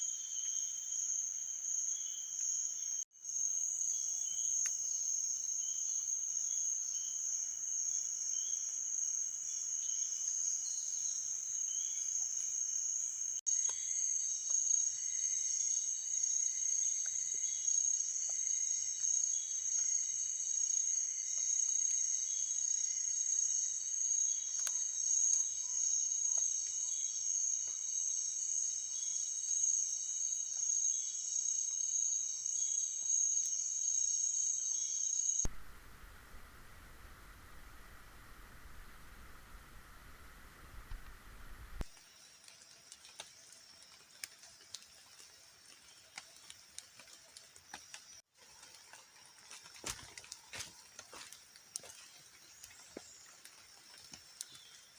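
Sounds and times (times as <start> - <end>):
insects shrill drone: 0.0 - 41.6
insects chirping: 0.0 - 54.9.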